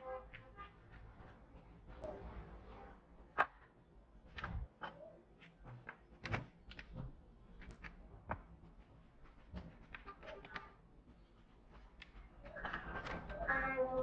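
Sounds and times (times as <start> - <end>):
clicks and taps of parts and tools: 4.3 - 8.5.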